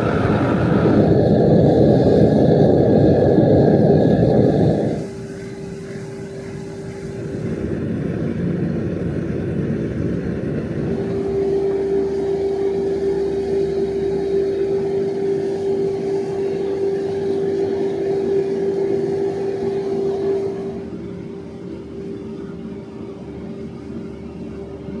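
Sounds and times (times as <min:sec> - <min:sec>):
power tool motor whining: 0:10.8 - 0:20.8.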